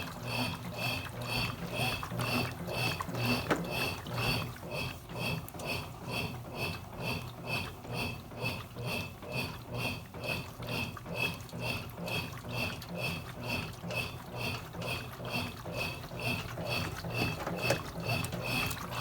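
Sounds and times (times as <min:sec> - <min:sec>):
washing machine swishing water: 0:00.0 - 0:19.0.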